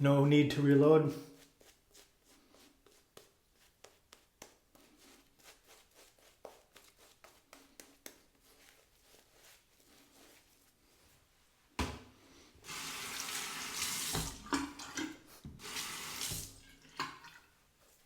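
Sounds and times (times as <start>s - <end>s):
shaving brush strokes on face: 1.2s - 11.3s.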